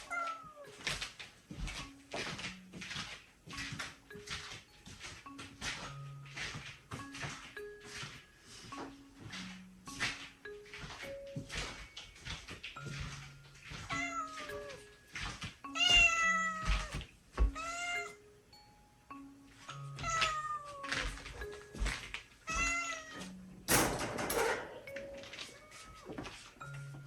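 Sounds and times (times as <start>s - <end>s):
soft background music: 0.0s - 27.0s
cat meowing: 13.9s - 14.8s, 15.7s - 18.2s, 20.0s - 21.2s, 22.5s - 23.4s
rustling: 19.6s - 27.0s.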